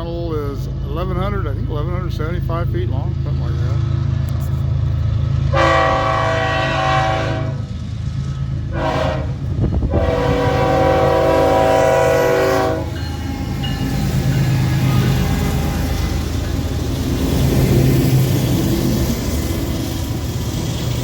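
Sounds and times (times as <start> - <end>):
diesel engines rumbling: 0.0 - 21.0
locomotive air horn blasts: 5.5 - 7.7, 8.7 - 13.6.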